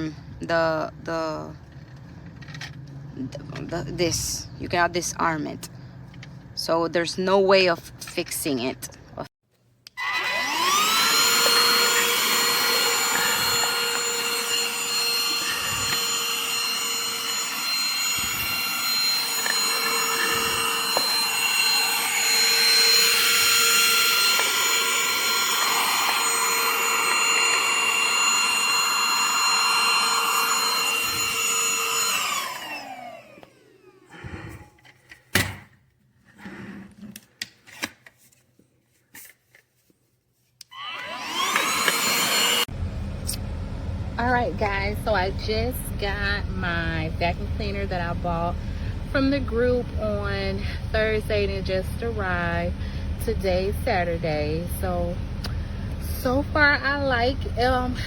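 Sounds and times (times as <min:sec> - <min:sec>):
vacuum cleaner motor whining: 0:09.9 - 0:34.7, 0:40.7 - 0:58.0.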